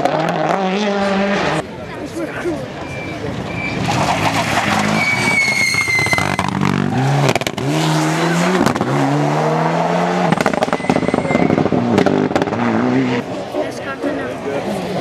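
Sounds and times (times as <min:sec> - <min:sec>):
rally car engine accelerating: 0:00.0 - 0:01.7, 0:02.9 - 0:13.8
tyre squeal: 0:02.8 - 0:06.7, 0:10.6 - 0:11.7.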